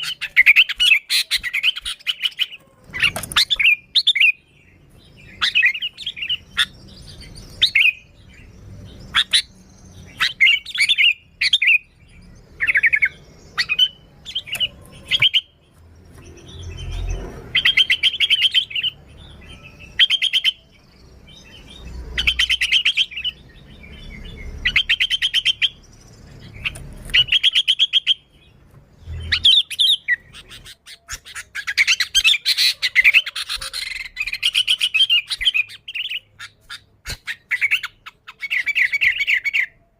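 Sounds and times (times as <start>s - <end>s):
bulbul calling: 5.1s - 11.9s.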